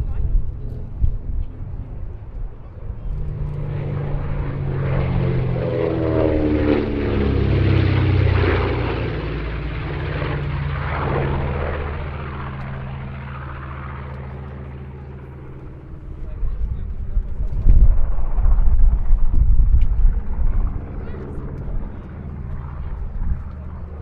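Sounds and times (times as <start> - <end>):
propeller plane flying past: 0.0 - 24.0.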